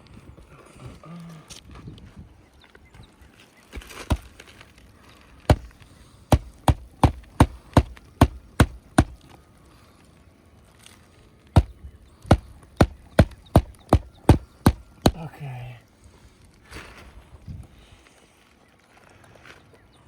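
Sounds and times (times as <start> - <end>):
hammer driving nails: 5.5 - 5.7, 6.3 - 9.2, 12.3 - 15.2.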